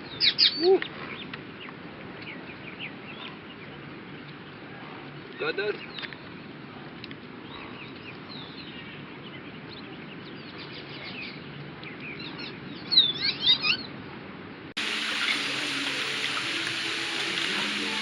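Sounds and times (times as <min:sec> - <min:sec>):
outdoor background hiss: 0:14.3 - 0:18.0
small birds chirping: 0:14.8 - 0:18.0.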